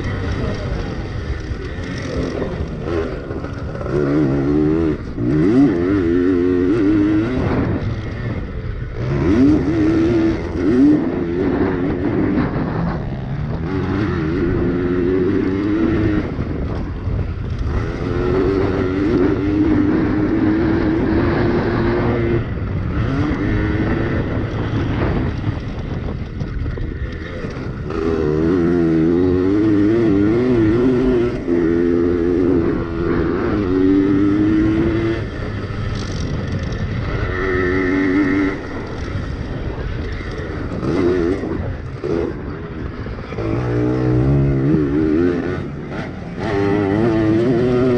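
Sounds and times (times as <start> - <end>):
pit bike engines revving: 0.0 - 47.9.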